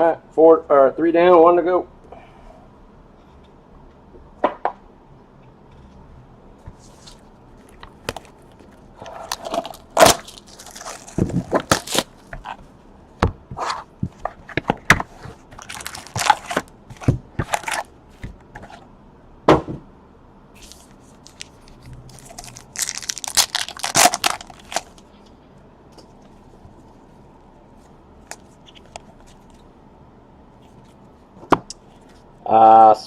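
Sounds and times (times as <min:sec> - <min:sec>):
wrapper crinkling: 0:07.6 - 0:12.6, 0:15.4 - 0:16.7, 0:17.5 - 0:17.9, 0:20.6 - 0:25.1
card stock tearing and cracking: 0:09.3 - 0:12.2, 0:15.6 - 0:16.7, 0:21.3 - 0:25.0.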